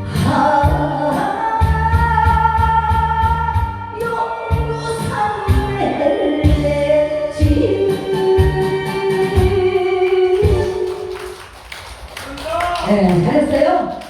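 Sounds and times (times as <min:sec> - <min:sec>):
person singing: 0:00.0 - 0:11.2
backing track with beat: 0:07.4 - 0:14.0.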